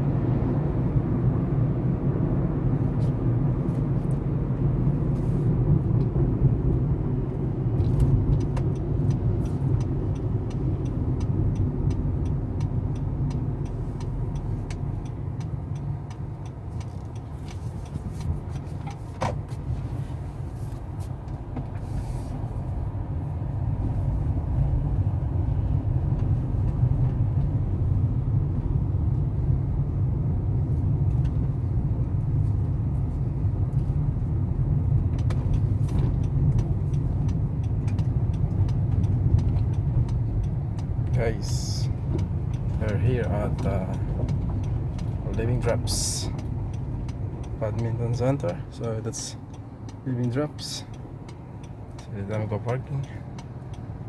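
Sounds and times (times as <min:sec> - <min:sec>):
car engine and road noise: 0:00.0 - 0:54.0
quick light ticks: 0:07.8 - 0:19.0, 0:34.8 - 0:54.0.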